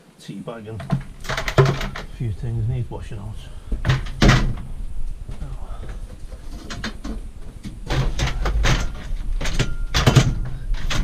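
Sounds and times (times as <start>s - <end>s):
steady low rumble: 1.9s - 11.0s
scrap items scraping and clattering: 5.8s - 11.0s.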